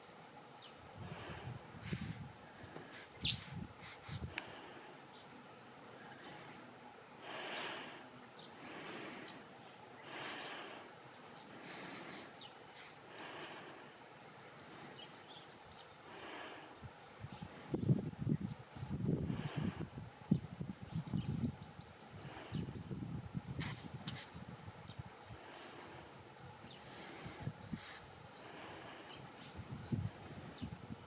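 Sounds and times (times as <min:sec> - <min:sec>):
insects trilling: 0:00.0 - 0:31.0.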